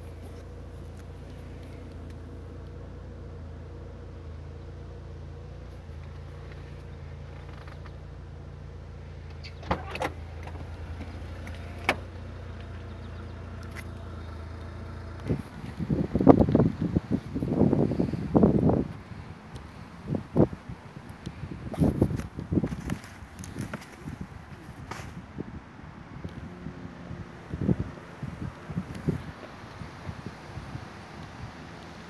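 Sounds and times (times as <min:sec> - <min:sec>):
wind and handling noise: 0:00.0 - 0:03.8, 0:05.3 - 0:32.0
car engine idling: 0:00.0 - 0:32.0.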